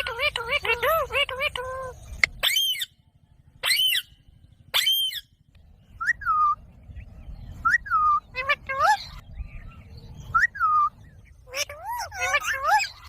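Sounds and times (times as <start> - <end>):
parrot shrill calls: 0.0 - 3.0, 3.6 - 5.3, 10.3 - 13.0.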